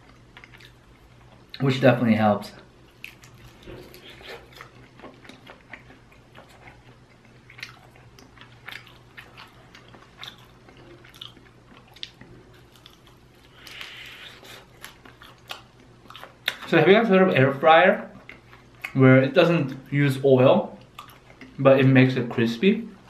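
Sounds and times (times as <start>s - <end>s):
person chewing: 0.0s - 1.6s, 2.8s - 16.7s, 20.8s - 21.6s.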